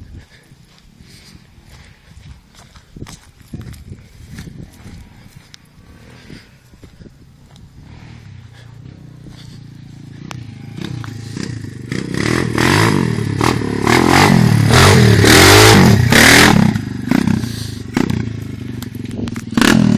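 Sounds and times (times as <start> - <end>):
dirt bike engine revving: 7.7 - 19.9.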